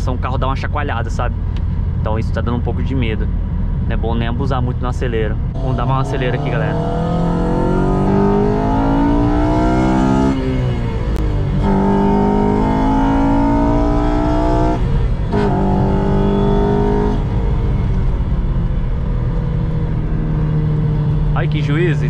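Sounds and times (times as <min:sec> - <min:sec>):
car engine accelerating hard: 0:05.5 - 0:22.0.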